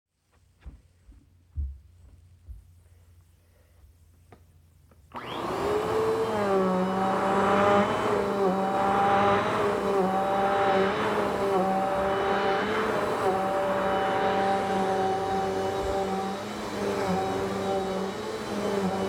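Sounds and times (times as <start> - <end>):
vacuum cleaner motor whining: 5.1 - 19.0.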